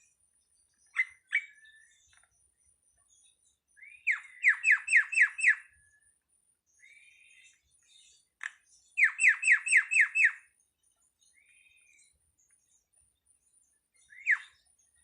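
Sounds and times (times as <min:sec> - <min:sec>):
starling whistled calls: 0:00.8 - 0:02.3, 0:03.8 - 0:05.8, 0:09.0 - 0:10.5, 0:14.0 - 0:14.7.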